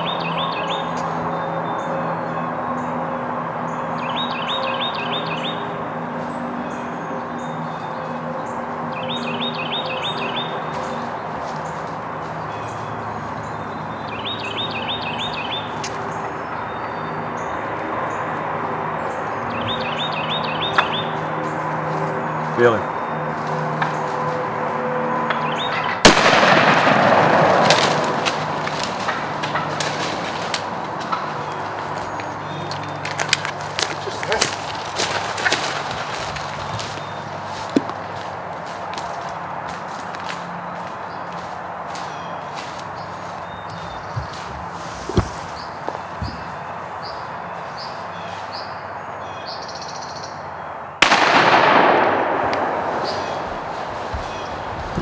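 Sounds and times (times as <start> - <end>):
shotgun blast: 26.0 - 28.2, 51.0 - 54.0
small bird chirping: 42.0 - 48.7.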